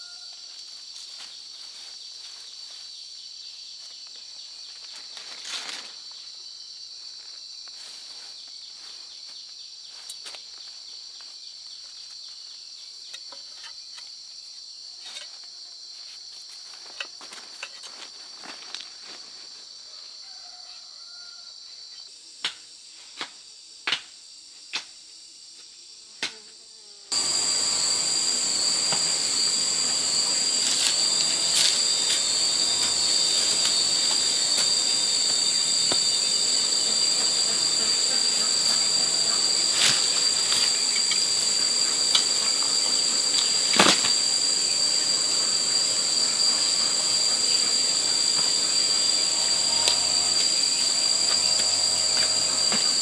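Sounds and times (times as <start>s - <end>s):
high-pitched insect chorus: 27.1s - 53.0s.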